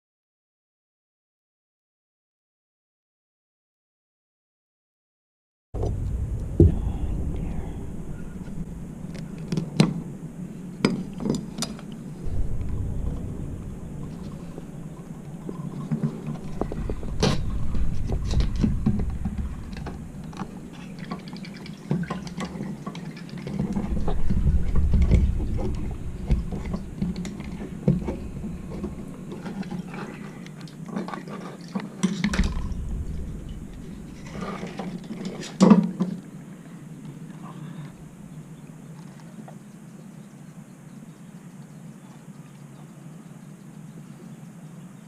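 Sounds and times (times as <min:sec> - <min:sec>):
low rumble: 0:05.8 - 0:30.7, 0:32.2 - 0:38.9.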